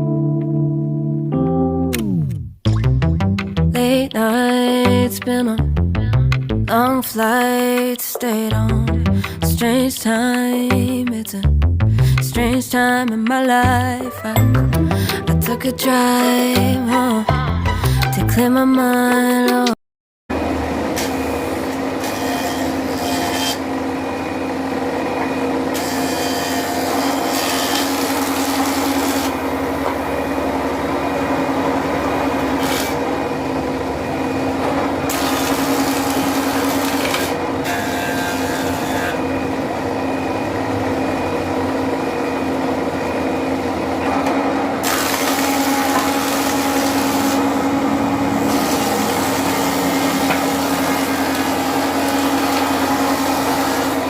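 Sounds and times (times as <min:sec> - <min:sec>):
wood cutting noise: 0:20.3 - 0:54.0
woodworking machine humming: 0:20.3 - 0:54.0.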